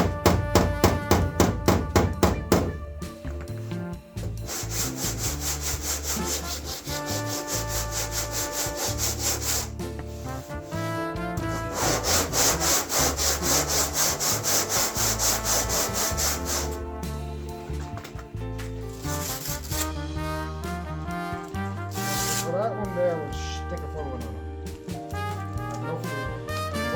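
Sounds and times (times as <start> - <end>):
sanding block scraping strokes: 4.4 - 18.0, 18.9 - 19.9, 21.9 - 22.6.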